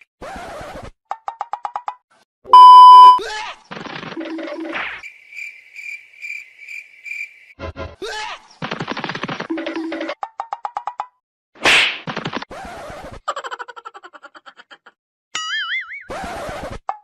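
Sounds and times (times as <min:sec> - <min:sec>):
loud test-tone beep: 0:02.6 - 0:03.2
short low tones: 0:02.6 - 0:03.2.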